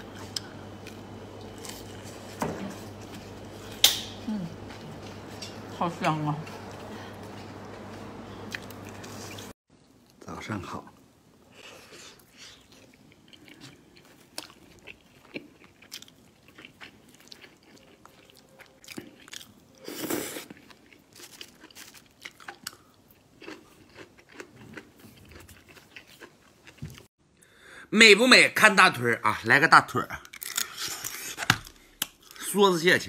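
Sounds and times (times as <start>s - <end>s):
person chewing food: 0.1s - 2.4s, 6.4s - 10.2s, 11.6s - 27.1s.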